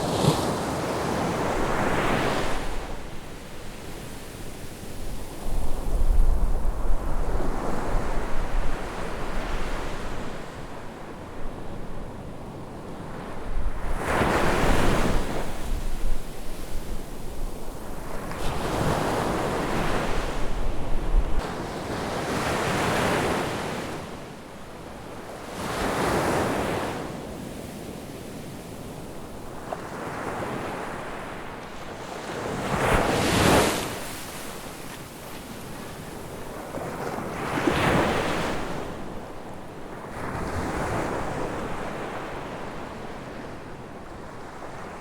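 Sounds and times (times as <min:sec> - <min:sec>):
waves breaking on a beach: 0:00.0 - 0:45.0
wind rumble on microphone: 0:04.9 - 0:21.5.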